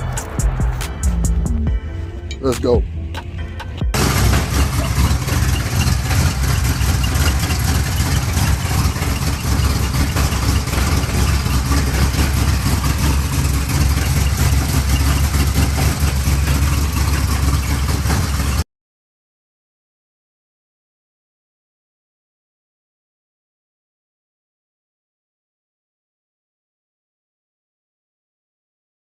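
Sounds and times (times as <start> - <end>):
car engine idling: 0.0 - 18.6.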